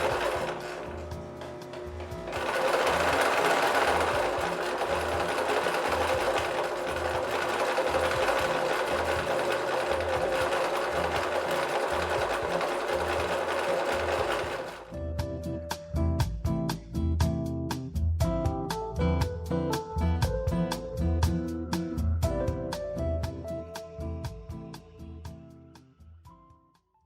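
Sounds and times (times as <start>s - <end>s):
sewing machine running: 0.0s - 15.0s.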